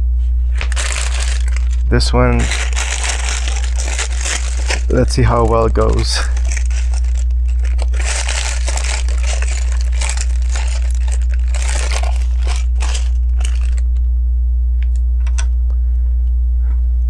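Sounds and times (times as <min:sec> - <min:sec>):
steady low hum: 0:00.0 - 0:17.0
plastic pieces rustling: 0:00.4 - 0:14.0.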